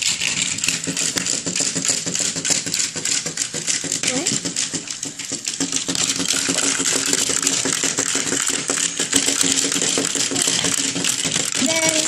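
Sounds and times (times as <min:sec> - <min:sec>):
toy motor buzz: 0:00.0 - 0:12.0
toy plastic clicking and rattling: 0:00.0 - 0:12.0.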